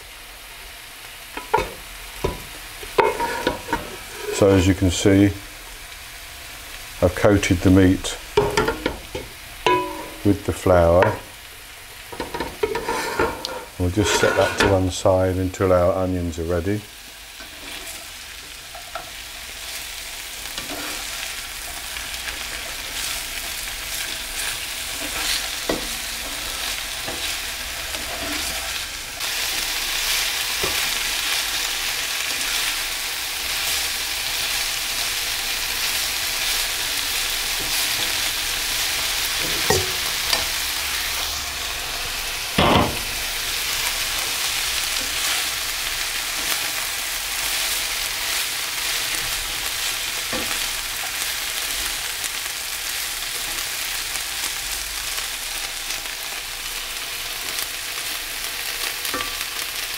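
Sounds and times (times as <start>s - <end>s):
onions sizzling in a frying pan: 0.0s - 59.9s
spatula knocking on pan: 1.4s - 3.8s, 8.4s - 10.2s, 42.6s - 43.1s
metal spatula scraping a pan: 2.9s - 4.6s, 9.7s - 10.4s, 12.2s - 14.8s, 17.4s - 19.2s, 20.4s - 21.3s, 24.0s - 28.8s, 38.9s - 40.7s.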